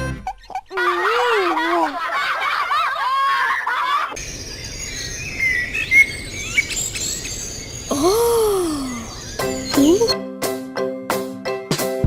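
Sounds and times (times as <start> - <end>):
birds chirping: 3.8 - 10.2.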